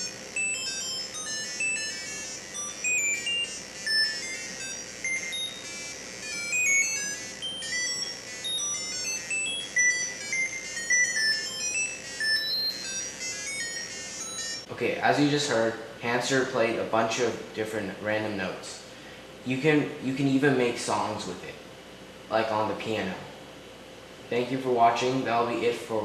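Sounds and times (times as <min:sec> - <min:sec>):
rapid electronic beeps: 0:00.0 - 0:14.7.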